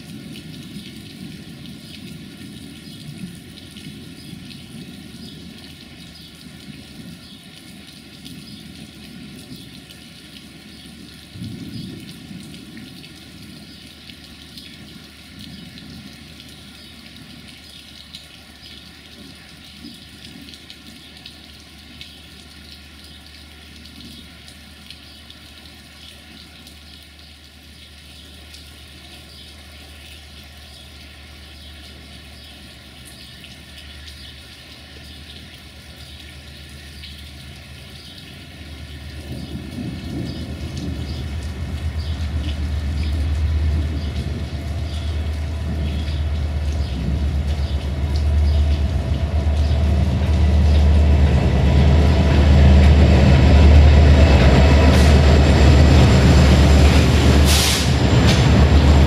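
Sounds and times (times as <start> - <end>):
steady rain hissing: 0.0 - 59.0
diesel locomotive drone: 38.7 - 59.0
low rumble: 39.2 - 59.0.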